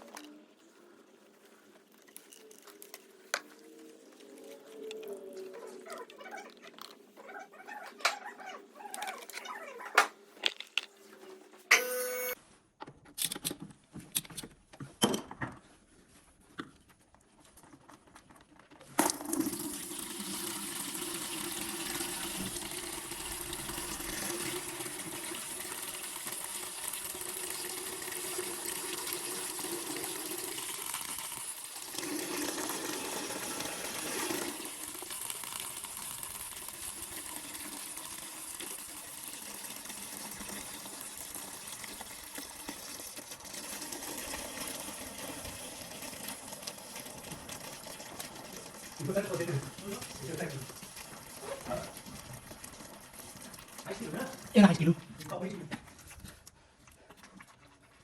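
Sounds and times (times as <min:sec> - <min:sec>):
tools clicking and knocking: 0:12.8 - 0:15.6.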